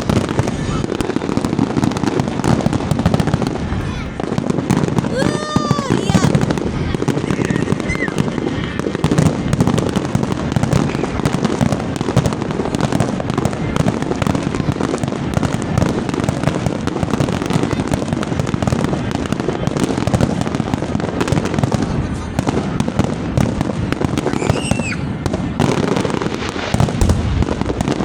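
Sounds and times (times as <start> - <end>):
fireworks crackling and popping: 0.0 - 28.0.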